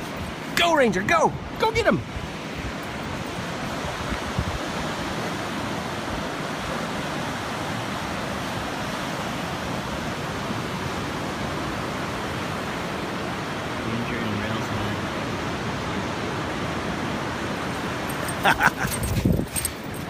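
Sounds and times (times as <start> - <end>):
surf: 0.0 - 19.9
wind: 0.0 - 20.0.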